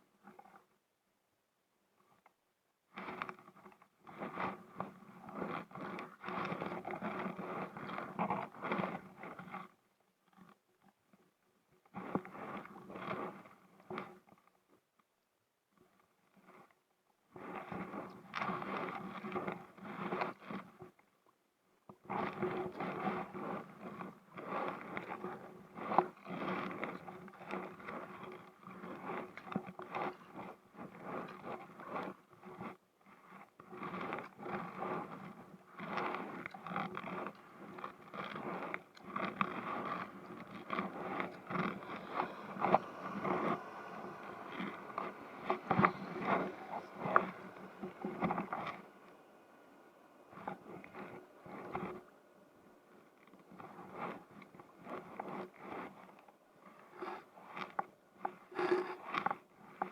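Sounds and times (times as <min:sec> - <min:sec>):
scraping and rubbing: 0:35.8 - 0:49.3, 0:50.3 - 0:52.1, 0:53.2 - 0:59.9.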